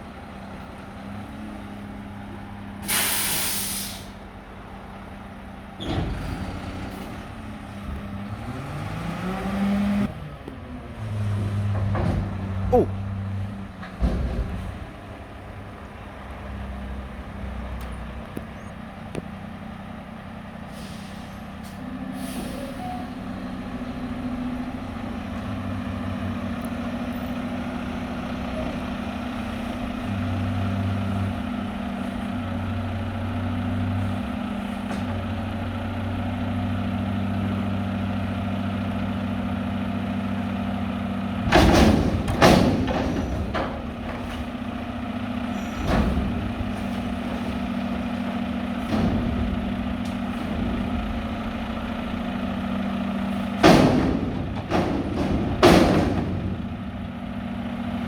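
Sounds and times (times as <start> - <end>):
garbage truck diesel engine: 0.0 - 58.0
loud bangs: 53.5 - 57.4.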